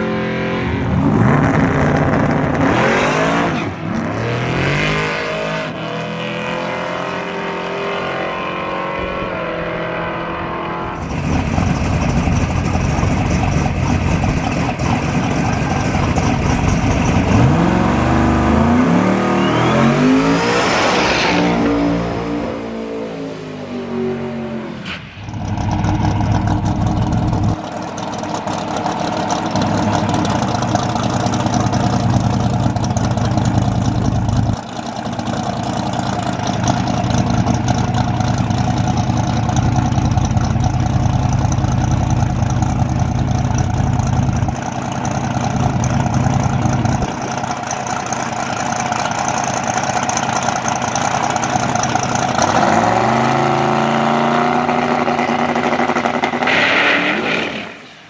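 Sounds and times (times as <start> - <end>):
car engine idling: 10.8 - 20.0, 25.1 - 53.2.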